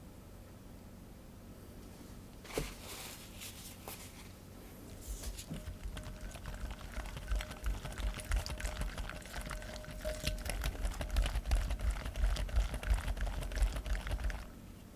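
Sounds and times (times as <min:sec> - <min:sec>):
rustling: 0:01.9 - 0:07.6
utensil clinking on bowl: 0:05.6 - 0:13.0.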